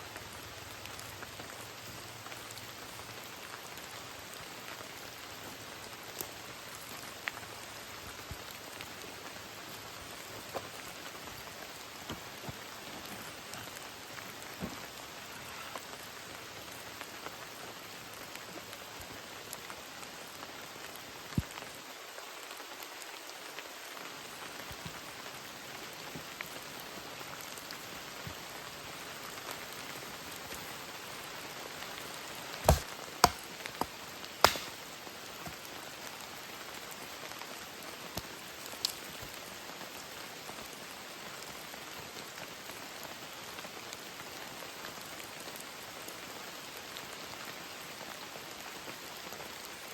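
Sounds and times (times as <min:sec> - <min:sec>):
sharp knocks: 0:32.7 - 0:34.8.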